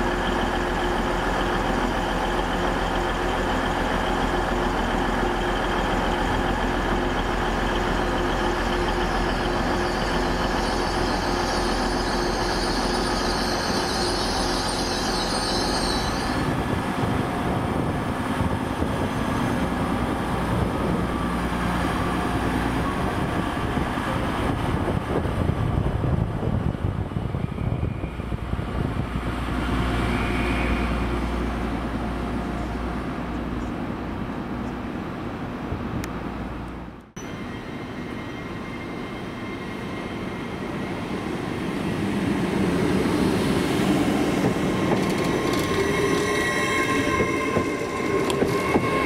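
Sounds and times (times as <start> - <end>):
trains rumbling: 0.0 - 49.0
high wheel squeal: 8.6 - 17.2, 27.2 - 28.4, 29.6 - 31.8, 44.2 - 49.0.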